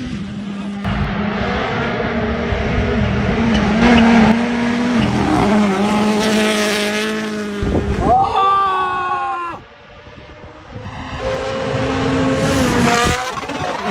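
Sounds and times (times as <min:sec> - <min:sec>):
rally car engine revving: 0:00.0 - 0:08.2, 0:09.8 - 0:13.9.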